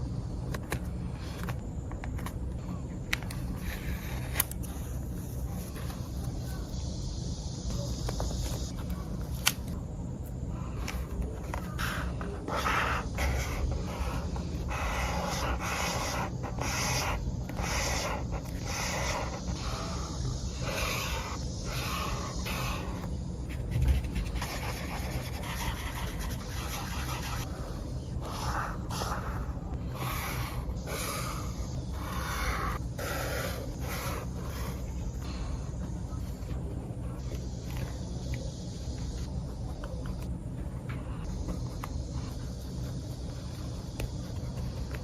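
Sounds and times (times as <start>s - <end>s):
steady low hum: 0.0s - 45.0s
paper rubbed by hand: 10.7s - 35.0s.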